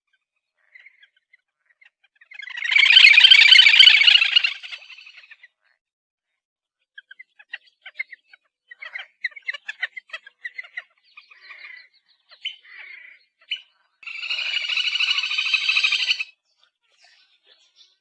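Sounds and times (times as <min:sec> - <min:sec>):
grebe chirping notes: 0:02.3 - 0:05.4, 0:08.8 - 0:16.3.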